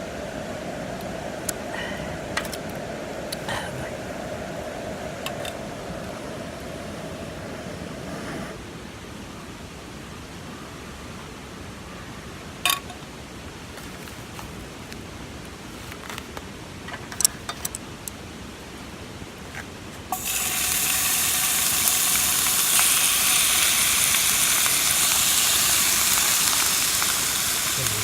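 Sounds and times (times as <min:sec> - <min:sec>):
meat sizzling on a grill: 0:20.1 - 0:28.0.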